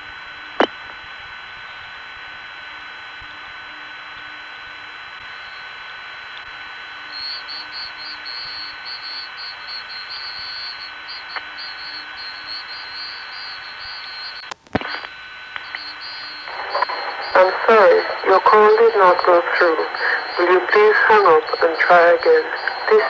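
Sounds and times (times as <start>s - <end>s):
telephone line hiss and tones: 2.0s - 23.0s
rapid high-pitched pulsing beep: 7.1s - 14.4s, 15.6s - 23.0s.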